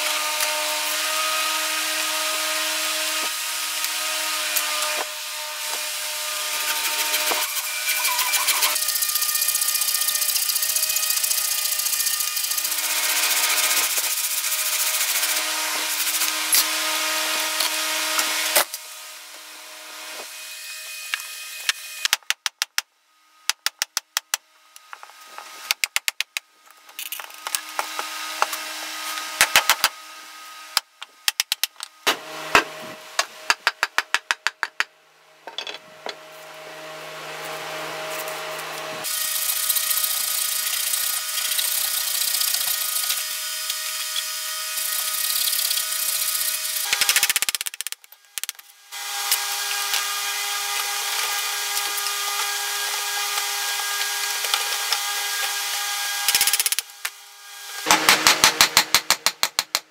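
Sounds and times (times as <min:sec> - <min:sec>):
handsaw cutting log: 0:00.0 - 0:18.8, 0:37.3 - 0:59.0.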